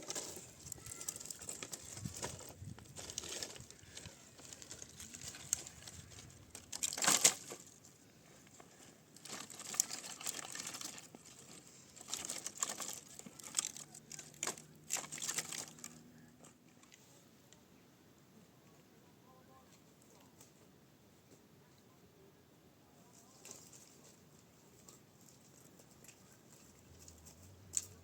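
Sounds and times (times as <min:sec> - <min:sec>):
material crinkling and rustling: 0:00.0 - 0:17.0.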